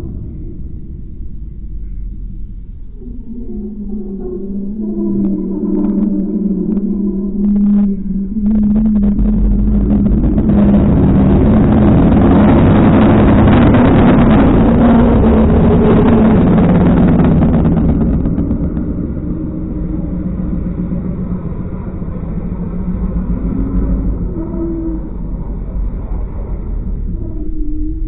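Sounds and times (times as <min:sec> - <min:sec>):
car engine and exhaust running: 0:08.3 - 0:27.1.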